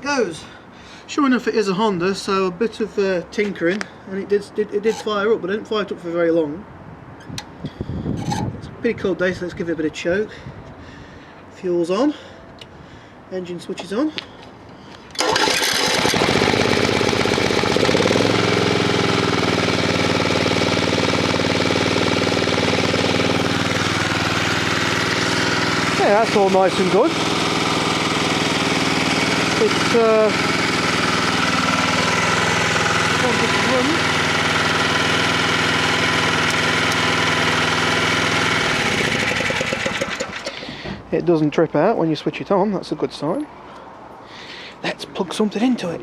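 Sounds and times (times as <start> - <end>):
generator engine running: 15.1 - 40.8.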